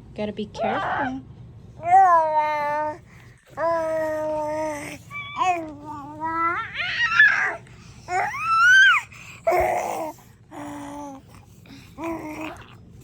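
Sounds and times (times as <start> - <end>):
baby babbling and squealing: 3.6 - 11.2.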